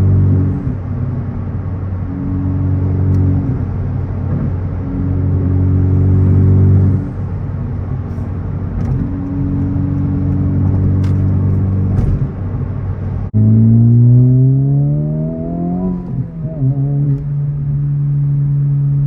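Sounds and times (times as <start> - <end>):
turbocharged car engine revving: 13.3 - 19.0.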